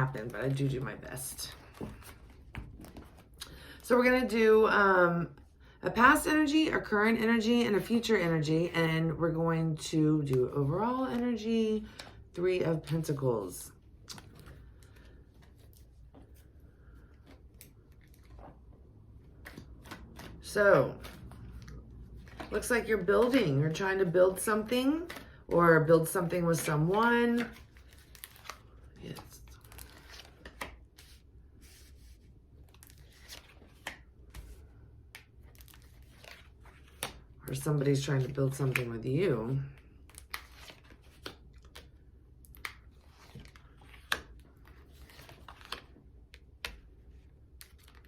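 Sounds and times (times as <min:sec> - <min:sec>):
cards flicking and rustling: 0:14.0 - 0:38.9, 0:39.8 - 0:48.0.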